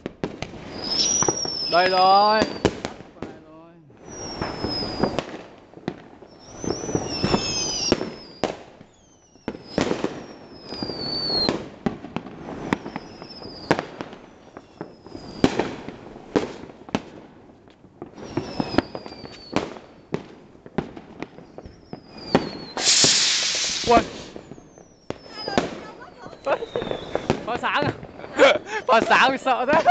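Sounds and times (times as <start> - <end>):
firework bangs: 0.0 - 29.9
firework crackling: 0.0 - 29.9
firework whistles falling in pitch: 0.7 - 2.8, 4.0 - 5.4, 6.3 - 11.6, 12.4 - 15.8, 18.2 - 19.8, 21.4 - 29.3.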